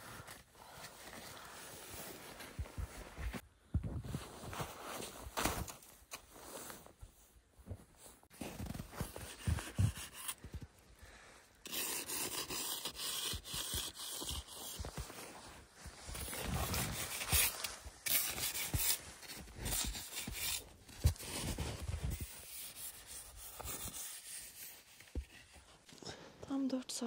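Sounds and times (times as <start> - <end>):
shovel scraping snow: 16.1 - 24.8.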